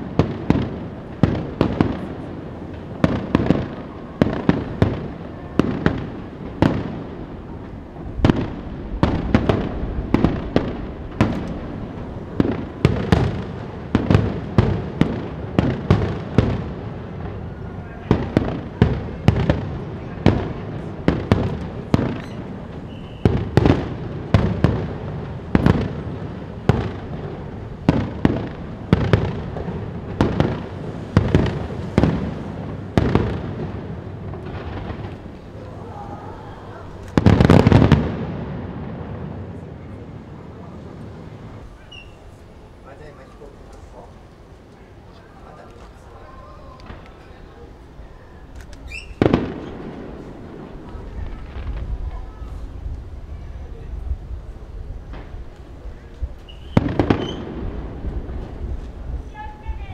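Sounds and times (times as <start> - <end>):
fireworks booming and crackling: 0.0 - 59.9
wind rumble on microphone: 50.1 - 56.8, 57.5 - 59.9.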